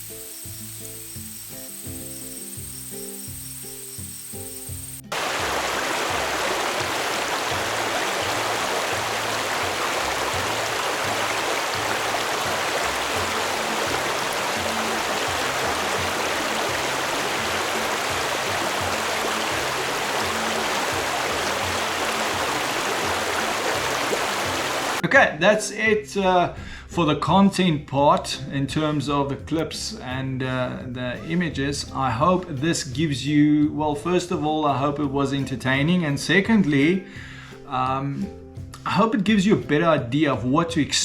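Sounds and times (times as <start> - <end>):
stream water rushing: 5.1 - 25.0
background music with bass: 6.1 - 41.0.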